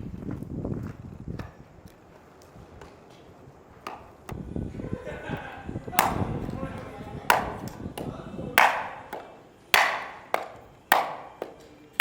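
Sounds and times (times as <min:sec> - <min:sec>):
chopping strikes with ringing: 0:09.8 - 0:11.5.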